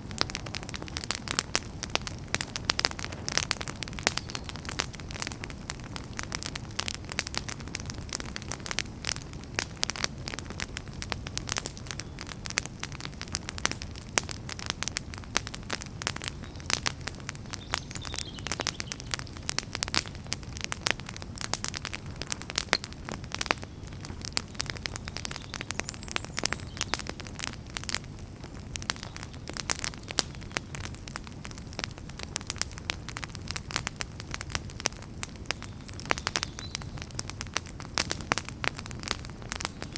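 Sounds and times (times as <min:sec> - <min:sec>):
firewood crackling and popping: 0:00.0 - 0:39.9
wood fire rumbling: 0:00.0 - 0:39.9.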